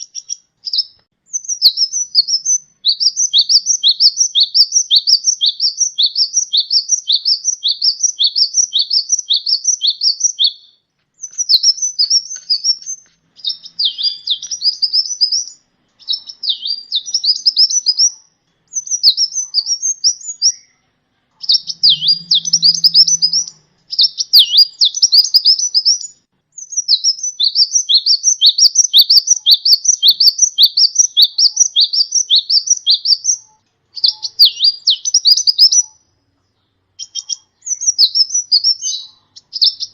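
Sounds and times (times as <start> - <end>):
sunbird singing high notes: 21.4 - 28.6.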